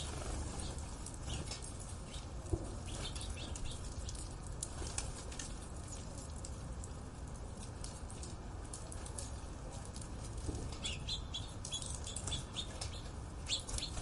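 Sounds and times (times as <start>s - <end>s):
birds chirping: 0.0s - 4.3s, 10.7s - 14.0s.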